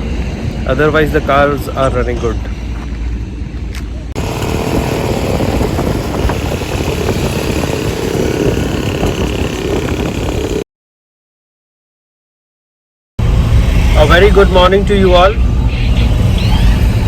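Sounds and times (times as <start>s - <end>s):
road noise: 0.0s - 10.6s, 13.2s - 17.0s
vehicle engine running: 4.2s - 10.6s.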